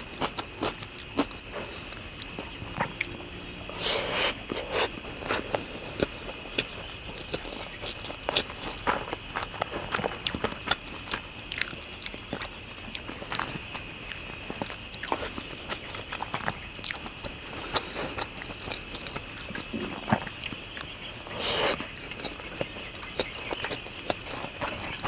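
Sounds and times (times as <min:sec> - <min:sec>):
high pulsing insect trill: 0:00.0 - 0:25.0
slurp or crunch: 0:03.8 - 0:05.5, 0:21.3 - 0:22.3
close chewing with wet smacks: 0:04.4 - 0:25.0.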